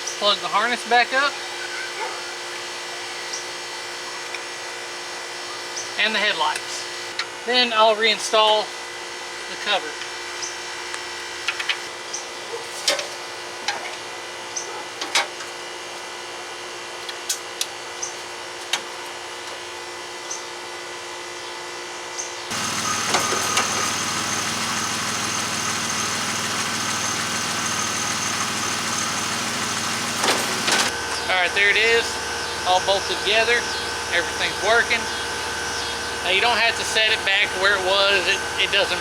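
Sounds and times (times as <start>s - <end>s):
car engine idling: 22.5s - 31.2s.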